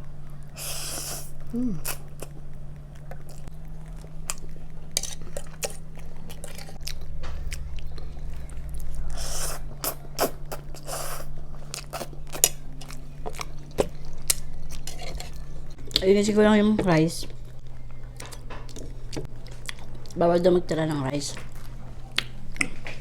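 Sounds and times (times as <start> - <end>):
mouth chewing sounds: 0.6 - 16.1.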